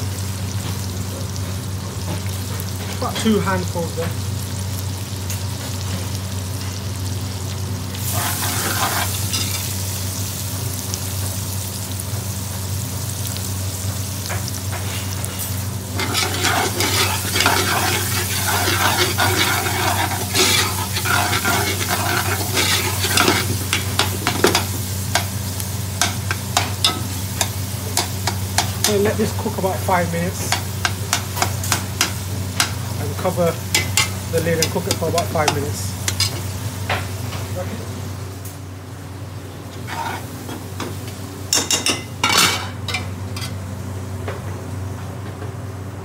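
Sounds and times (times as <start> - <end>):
vegetables sizzling in oil: 0.0 - 44.2
steady low hum: 13.8 - 44.4
metal spoon scraping a pot: 16.0 - 24.6, 39.9 - 40.2.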